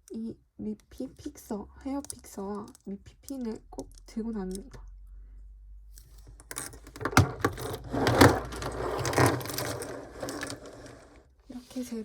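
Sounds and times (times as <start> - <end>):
small items clicking and rustling: 6.0 - 11.2.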